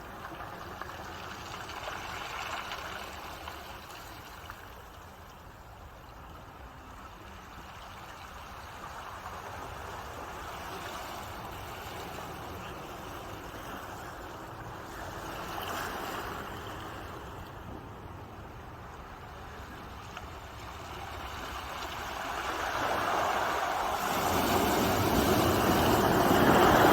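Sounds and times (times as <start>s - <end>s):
ocean waves washing in: 8.3s - 26.9s.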